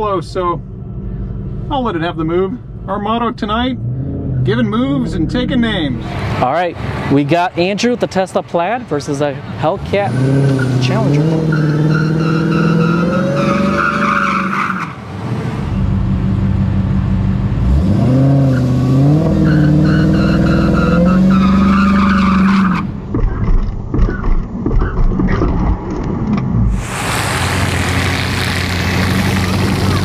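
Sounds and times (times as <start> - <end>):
uneven rumbling and bumps: 0.0 - 7.7, 22.6 - 30.0
car engine idling and revving: 0.0 - 30.0.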